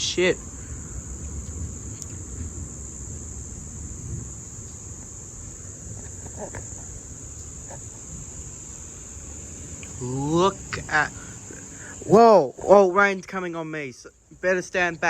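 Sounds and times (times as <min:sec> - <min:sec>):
low rumble: 0:00.0 - 0:11.8
high-pitched insect chorus: 0:00.0 - 0:15.0.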